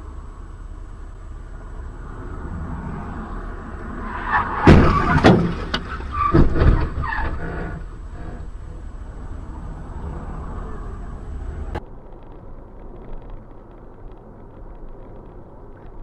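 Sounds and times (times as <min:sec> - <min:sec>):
vehicle road rumble: 0:00.0 - 0:16.0
vehicle collision bangs and crunches: 0:03.8 - 0:09.1.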